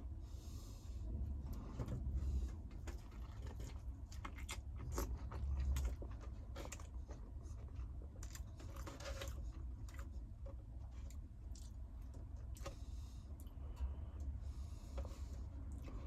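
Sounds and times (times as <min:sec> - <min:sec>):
small clicks and crunches: 0:02.8 - 0:12.7.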